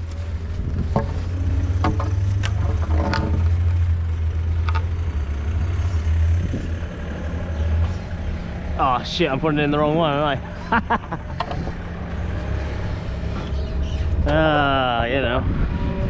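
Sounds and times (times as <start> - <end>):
engine running at low speed: 0.0 - 16.0
sharp knocks and clatters: 0.8 - 3.8, 11.3 - 11.8.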